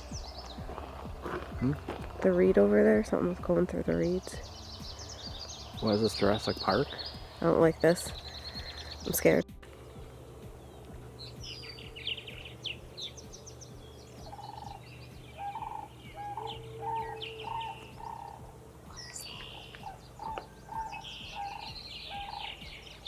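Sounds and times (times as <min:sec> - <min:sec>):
birds chirping and trilling: 0:00.0 - 0:23.0
short lower bird call: 0:14.2 - 0:23.0.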